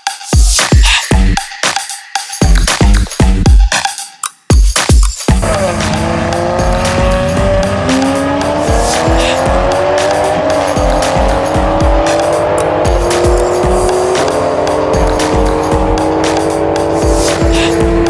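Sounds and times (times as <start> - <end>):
electronic dance music: 0.0 - 18.0
car engines at full throttle: 5.3 - 18.0.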